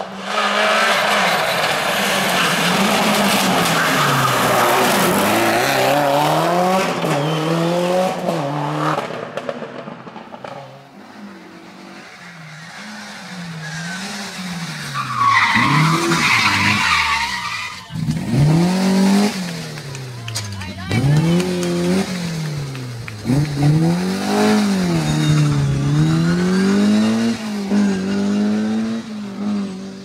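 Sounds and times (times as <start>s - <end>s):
rally car engine revving: 0.0s - 30.0s
tyres squealing: 0.4s - 5.5s, 12.2s - 18.1s
quieter engine rising and falling: 17.9s - 30.0s.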